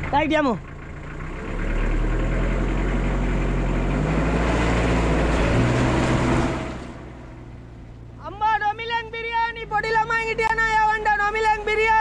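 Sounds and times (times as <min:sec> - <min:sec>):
vehicle engine pulling away: 0:00.0 - 0:08.2.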